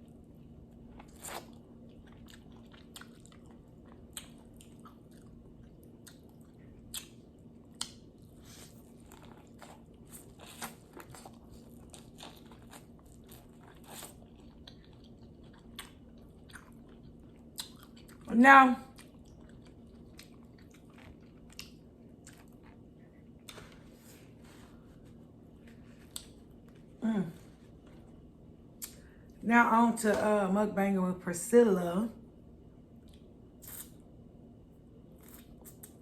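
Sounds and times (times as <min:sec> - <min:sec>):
chewing corn on the cob: 0:00.0 - 0:23.8
faint steady hum: 0:00.0 - 0:36.0.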